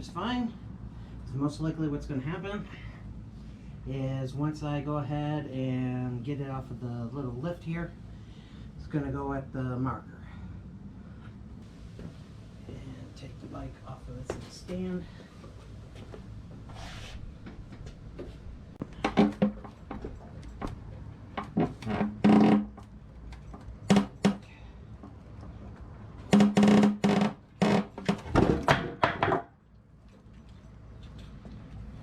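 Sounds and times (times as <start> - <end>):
metal clanks and thunks: 18.8 - 20.8, 27.9 - 29.5.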